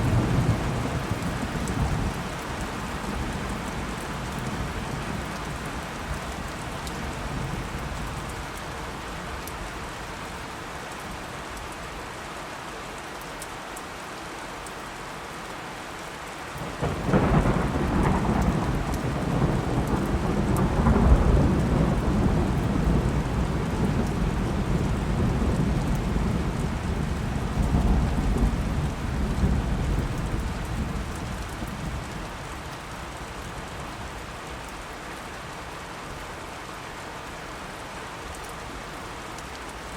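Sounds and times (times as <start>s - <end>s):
steady rain: 0.0s - 39.9s
thunderclap rumbling: 16.8s - 32.1s.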